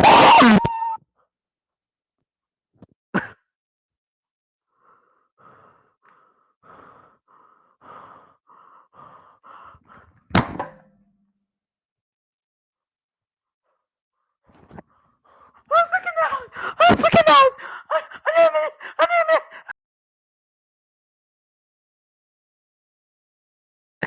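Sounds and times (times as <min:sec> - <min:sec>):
person sighing: 0:16.1 - 0:19.7.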